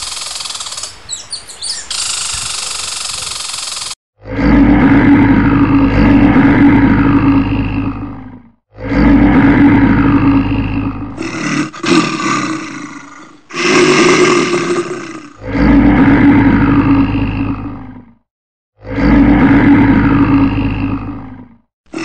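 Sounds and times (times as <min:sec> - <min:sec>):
bear roaring: 0:04.2 - 0:18.2, 0:18.8 - 0:22.0.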